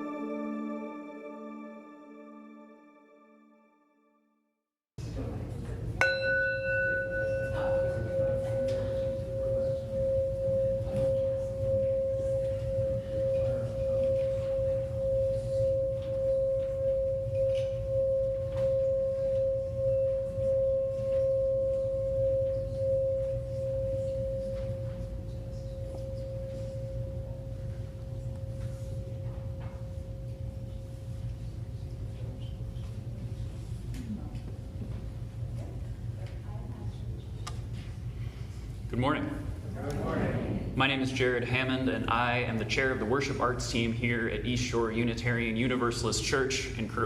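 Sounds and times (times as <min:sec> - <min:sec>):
singing bowl ringing: 0:00.0 - 0:03.7, 0:06.0 - 0:31.5
low steady hum: 0:05.0 - 0:47.0.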